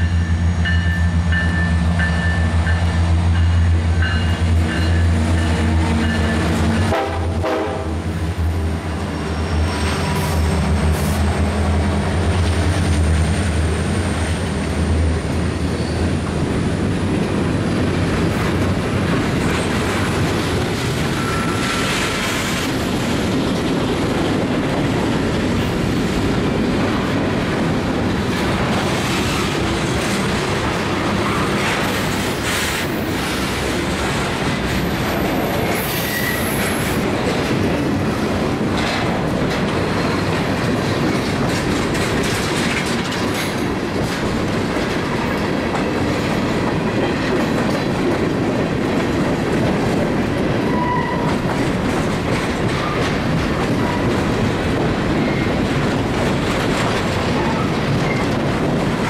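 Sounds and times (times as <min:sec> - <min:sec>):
diesel locomotive engine: 0:00.0 - 0:59.0
high wheel squeals: 0:09.0 - 0:10.4, 0:21.0 - 0:22.2, 0:35.4 - 0:36.9
wheels clicking over rail joints: 0:36.6 - 0:59.0.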